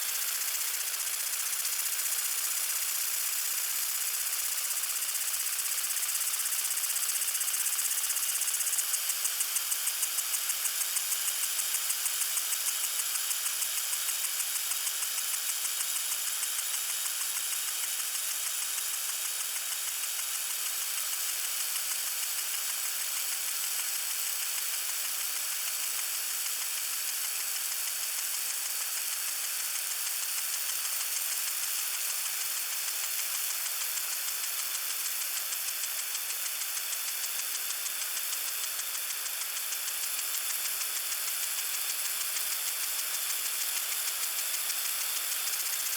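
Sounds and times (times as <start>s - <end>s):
water sprinkler spraying: 0.0s - 45.9s.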